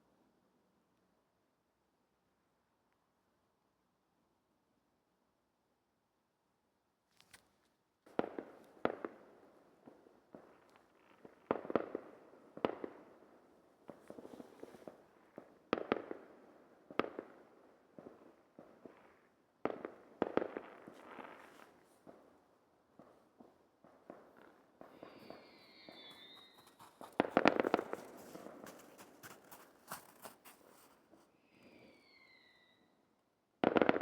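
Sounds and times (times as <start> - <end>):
faint firework crackling: 13.8 - 16.4, 18.0 - 22.3, 22.9 - 32.3
fireworks bangs: 24.1 - 28.8.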